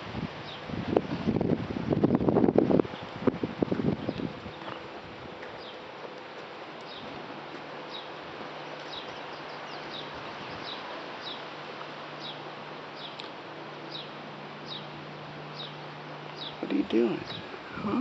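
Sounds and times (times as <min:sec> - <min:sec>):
steady low hum: 0:00.0 - 0:18.0
wind: 0:00.0 - 0:18.0
small bird chirping: 0:07.9 - 0:11.5, 0:13.0 - 0:13.3, 0:13.9 - 0:17.5.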